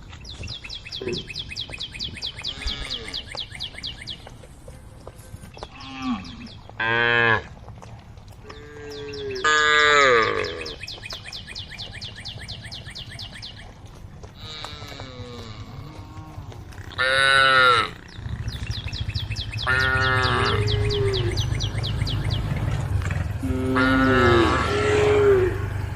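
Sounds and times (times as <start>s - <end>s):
cows mooing: 2.4s - 3.5s, 5.6s - 7.6s, 8.4s - 10.8s, 14.3s - 25.9s.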